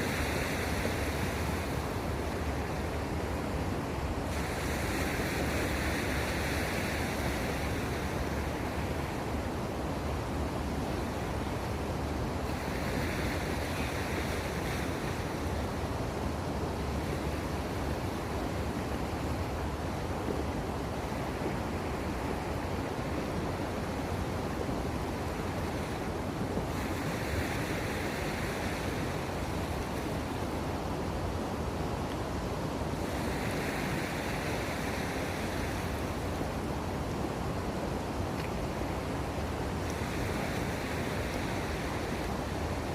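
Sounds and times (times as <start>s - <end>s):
sea waves washing ashore: 0.0s - 42.9s
wind on microphone: 0.0s - 42.9s.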